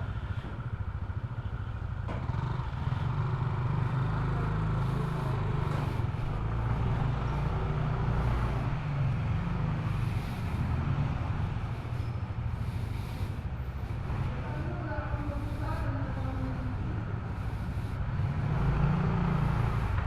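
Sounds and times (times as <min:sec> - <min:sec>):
motor scooter engine running: 0:00.0 - 0:20.0.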